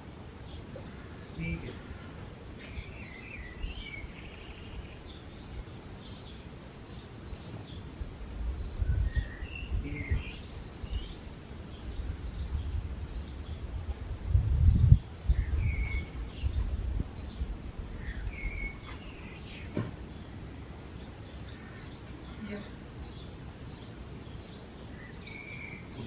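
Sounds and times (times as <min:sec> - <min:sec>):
birds chirping: 0:00.4 - 0:13.8, 0:14.6 - 0:26.0.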